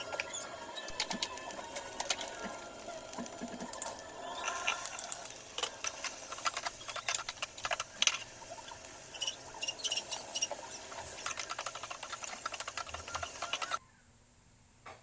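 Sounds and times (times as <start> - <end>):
rapid clicking and rattling: 4.9 - 13.8.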